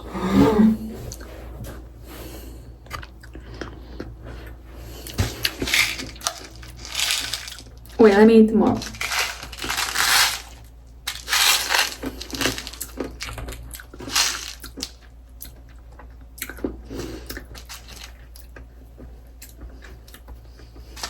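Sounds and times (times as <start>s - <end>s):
person crunching hard candies: 5.0s - 8.0s, 8.8s - 18.6s.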